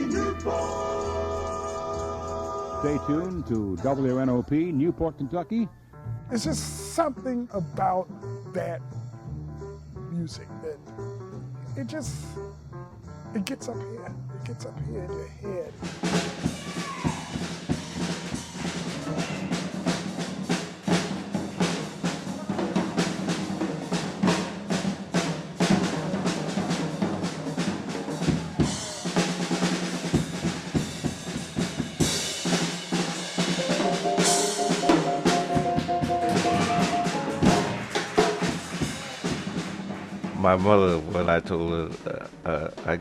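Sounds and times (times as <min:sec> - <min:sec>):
jazz drum kit playing: 0:13.4 - 0:41.3.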